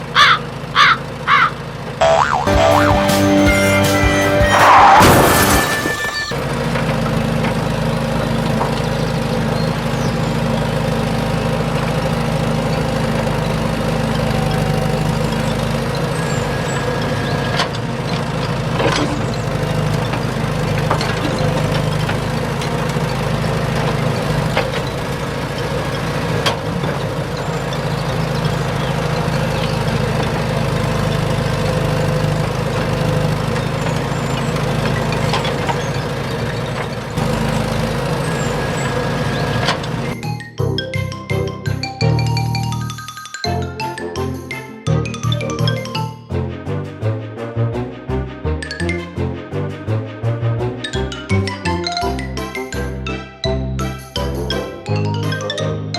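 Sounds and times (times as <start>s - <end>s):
heavy diesel engine running: 0.0s - 42.9s, 43.5s - 55.5s
loud burst of noise: 2.5s - 6.6s.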